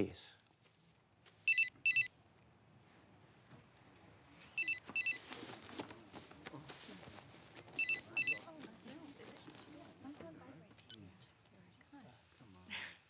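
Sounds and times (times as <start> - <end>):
phone ringing: 1.5 - 2.1, 4.6 - 5.3, 7.8 - 8.5.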